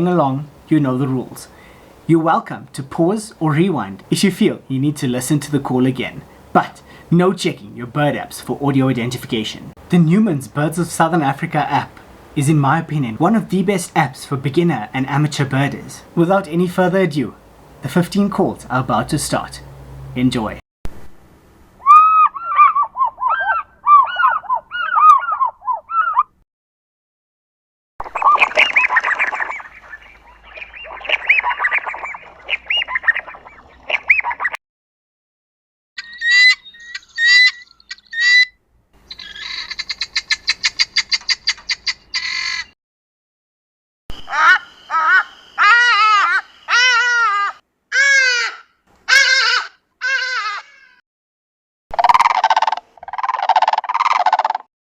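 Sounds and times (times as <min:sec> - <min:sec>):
bird yelping notes: 0:21.8 - 0:26.4, 0:28.0 - 0:34.6, 0:36.0 - 0:42.8, 0:44.2 - 0:50.9, 0:51.9 - 0:54.7
eagle call with ringing notes: 0:44.2 - 0:47.0.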